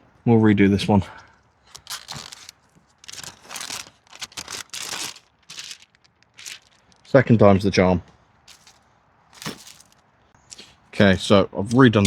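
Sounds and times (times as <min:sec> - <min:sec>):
plastic film crinkling: 0:01.6 - 0:07.2, 0:08.5 - 0:10.0.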